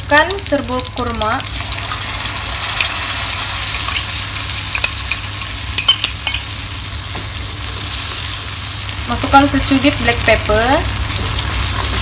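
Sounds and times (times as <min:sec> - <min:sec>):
paste sizzling in wok: 0:00.6 - 0:12.0
utensils clicking on wok: 0:03.6 - 0:06.6.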